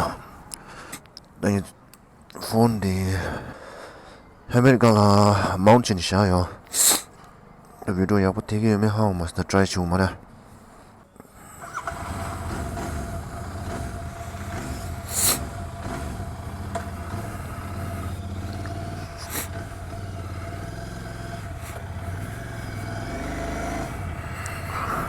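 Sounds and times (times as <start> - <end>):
vehicle engine idling: 11.3 - 25.0.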